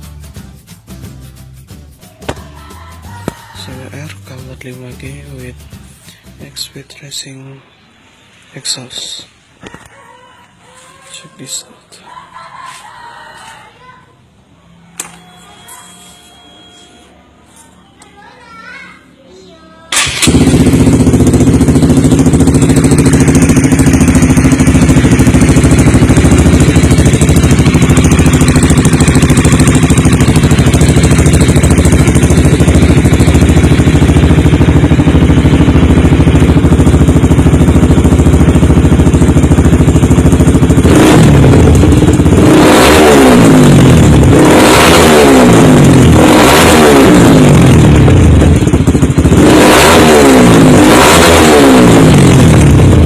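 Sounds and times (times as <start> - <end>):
motorcycle engine revving: 19.9 - 53.0.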